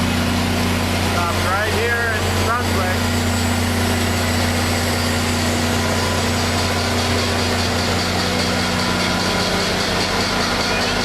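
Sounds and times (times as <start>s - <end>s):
diesel locomotive engine idling: 0.0s - 11.0s.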